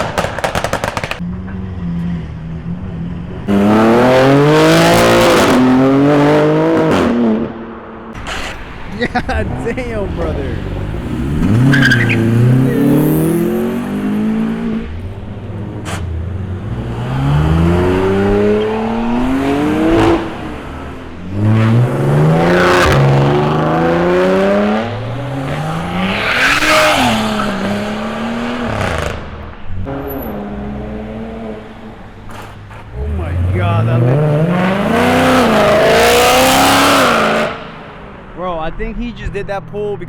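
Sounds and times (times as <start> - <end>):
car engine revving hard: 3.4 - 32.1, 32.9 - 38.3
tyre squeal: 8.2 - 8.9, 11.4 - 13.0.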